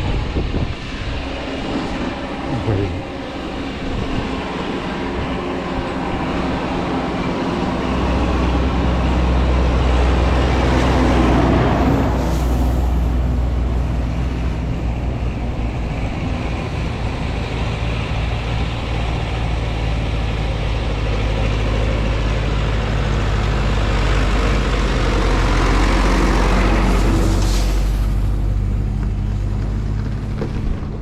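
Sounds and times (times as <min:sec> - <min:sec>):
wind rushing on microphone: 0:00.0 - 0:19.7.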